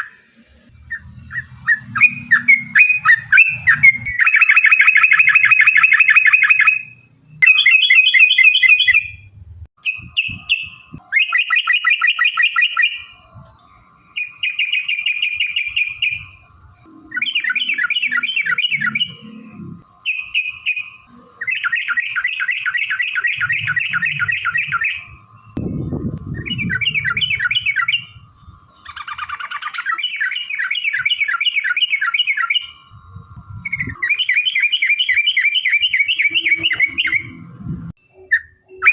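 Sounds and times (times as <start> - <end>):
bulbuls chattering trills: 10.0 - 37.5.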